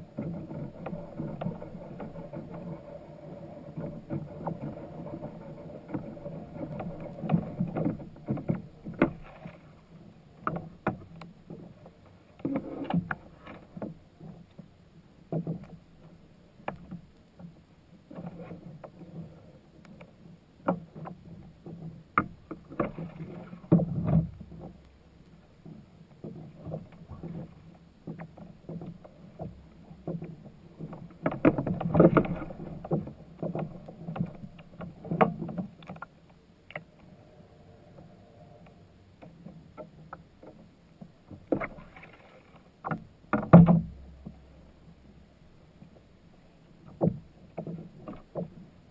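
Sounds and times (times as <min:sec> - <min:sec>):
water lapping against boat: 0:00.0 - 0:36.1
knocks and clatter on kayak: 0:00.0 - 0:36.9, 0:39.1 - 0:46.1, 0:46.7 - 0:48.9.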